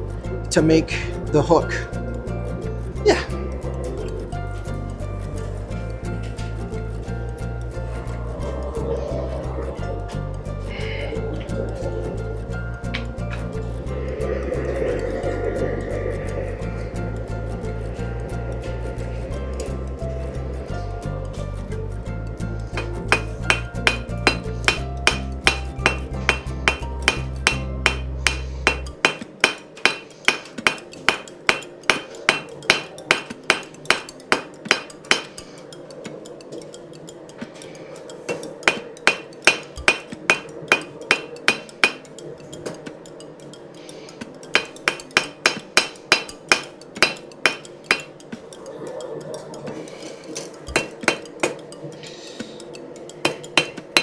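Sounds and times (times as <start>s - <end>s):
background music: 0.0s - 54.0s
hammer striking steel on anvil: 22.8s - 35.4s, 38.3s - 42.1s, 44.5s - 48.2s, 50.7s - 51.6s, 53.2s - 54.0s.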